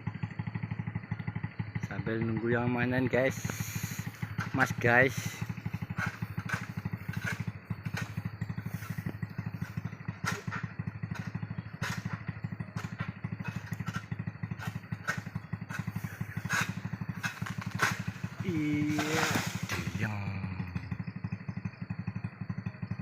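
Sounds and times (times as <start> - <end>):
motorcycle engine puttering: 0.0 - 23.0
sharp knocks or clatter: 12.8 - 18.2.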